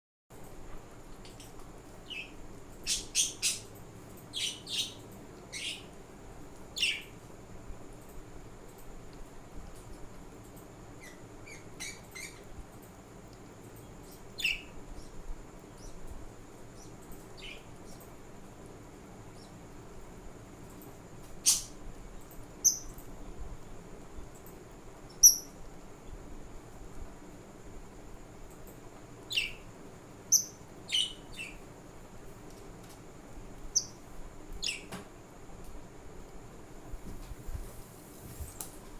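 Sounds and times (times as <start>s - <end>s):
budgerigars chirping: 2.1s - 3.7s, 4.3s - 5.9s, 21.4s - 21.7s, 30.3s - 31.6s.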